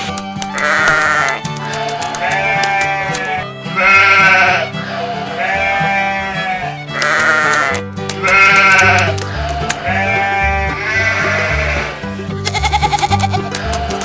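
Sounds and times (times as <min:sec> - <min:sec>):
quavering animal bleats: 0:00.0 - 0:14.0
background music with bass line: 0:06.6 - 0:14.0.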